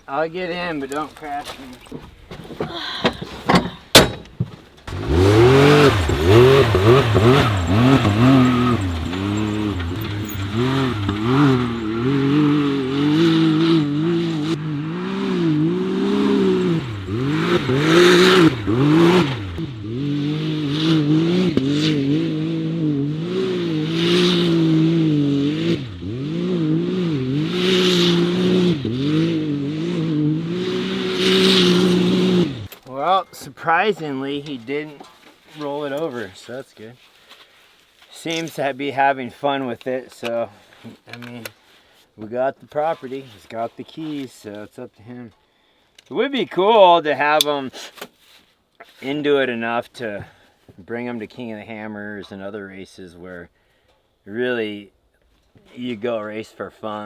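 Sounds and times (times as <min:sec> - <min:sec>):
off-road vehicle engine revving: 0:04.8 - 0:32.7.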